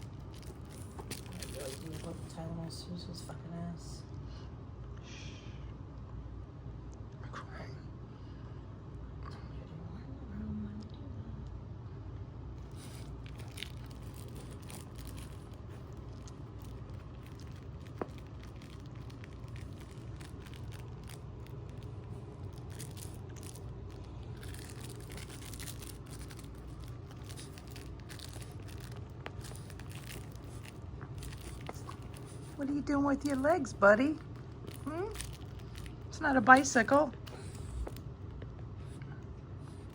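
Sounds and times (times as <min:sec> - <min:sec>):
pet chewing crinkly toy: 0:00.0 - 0:03.1, 0:12.6 - 0:39.0, 0:39.6 - 0:39.9.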